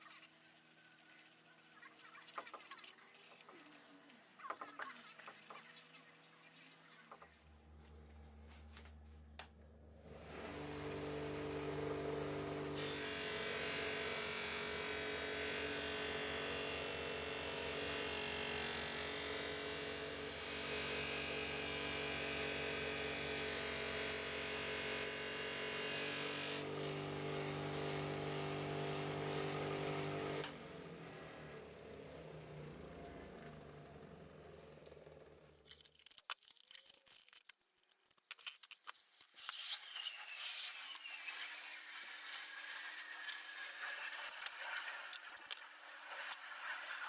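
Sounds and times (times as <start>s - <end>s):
power tool motor running: 10.0s - 35.5s.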